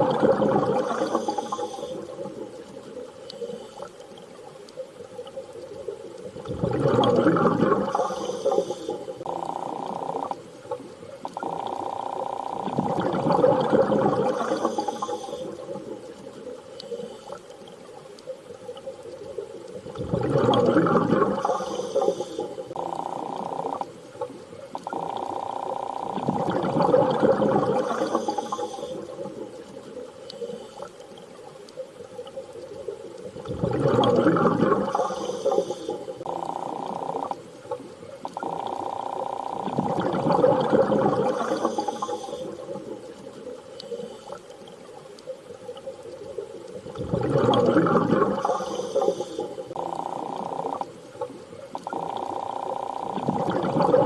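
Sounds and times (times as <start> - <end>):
rushing underwater swell: 5.0 - 10.3, 18.6 - 24.2, 32.7 - 37.3, 45.6 - 52.2.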